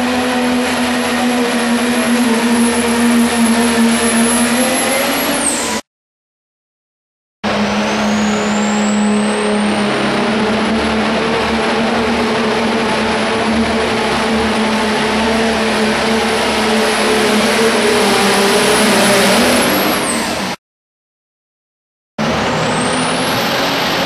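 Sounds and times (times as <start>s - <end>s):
diesel engine drone: 0.0s - 5.9s, 7.4s - 20.6s, 22.2s - 24.0s
high turbocharger whistle: 0.0s - 5.9s, 7.4s - 20.6s, 22.2s - 24.0s.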